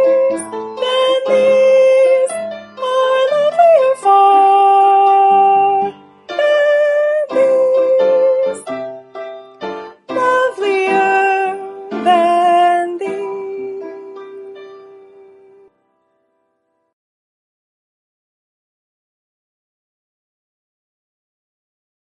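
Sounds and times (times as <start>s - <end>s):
piano accompaniment: 0.0s - 17.0s.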